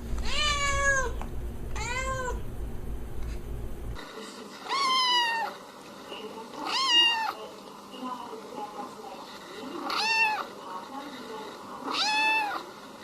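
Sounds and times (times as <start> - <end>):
low hum: 0.0 - 4.0
cat meowing: 0.2 - 1.2, 1.8 - 2.4, 4.7 - 5.6, 6.6 - 7.4, 9.8 - 10.5, 11.8 - 12.6.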